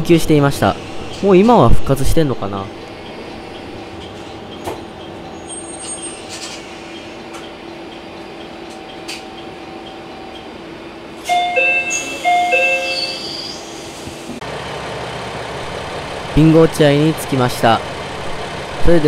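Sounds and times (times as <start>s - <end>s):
railcar interior hum: 0.0s - 19.0s
high brake squeal: 5.3s - 7.2s, 11.2s - 14.0s.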